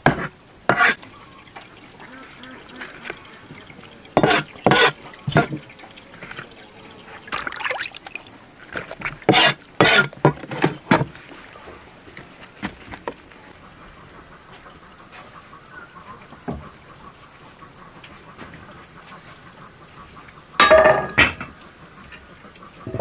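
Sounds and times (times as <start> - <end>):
water splashing: 0.9 - 10.2.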